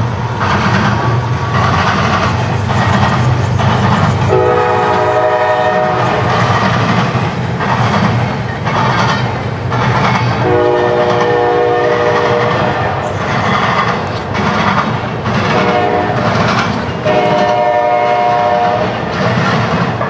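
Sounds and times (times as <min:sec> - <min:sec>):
train rumbling: 0:00.0 - 0:20.0
locomotive horn blasts: 0:04.0 - 0:06.3, 0:10.4 - 0:13.1, 0:15.5 - 0:16.2, 0:17.0 - 0:18.9.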